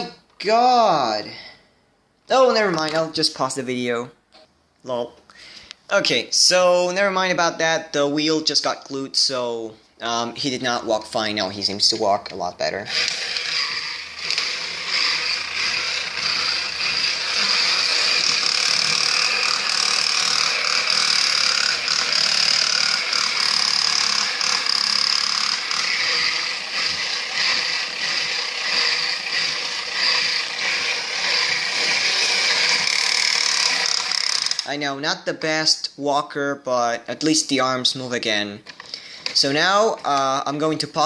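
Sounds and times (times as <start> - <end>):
toy robot motor whirring: 12.8 - 34.7.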